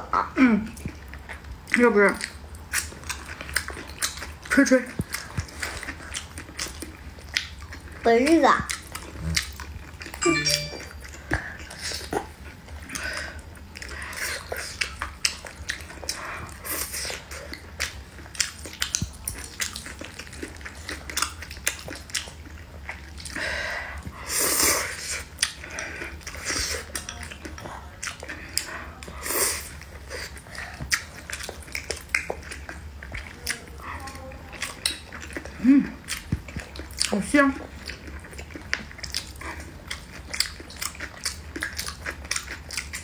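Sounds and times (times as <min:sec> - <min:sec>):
chewing and lip-smacking: 0:00.7 - 0:10.4, 0:11.0 - 0:43.0.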